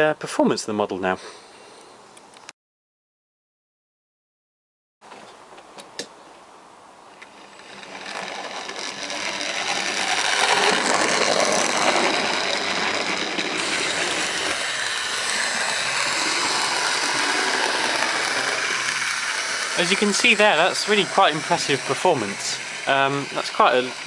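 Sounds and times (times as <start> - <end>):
model train motor whirring: 7.2 - 24.0.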